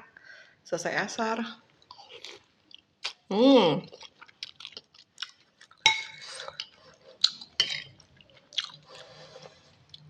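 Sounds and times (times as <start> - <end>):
chewing smacks: 3.9 - 9.1.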